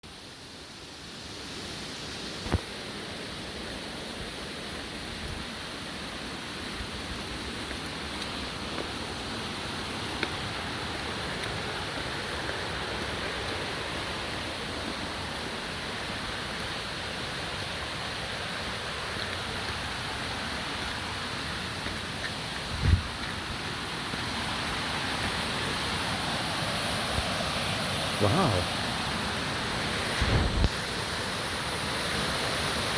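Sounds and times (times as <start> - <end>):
waterfall rushing: 1.0 - 32.9.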